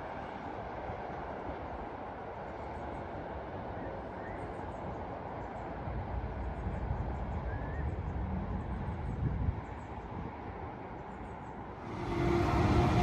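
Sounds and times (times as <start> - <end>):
steady low rumble: 11.8 - 13.0.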